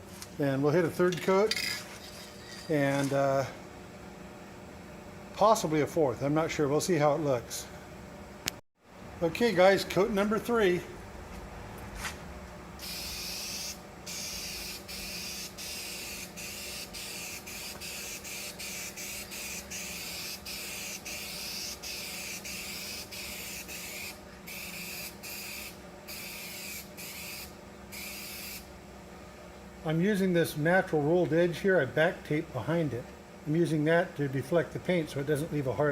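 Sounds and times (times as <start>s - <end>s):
spray paint can hissing: 12.8s - 28.6s.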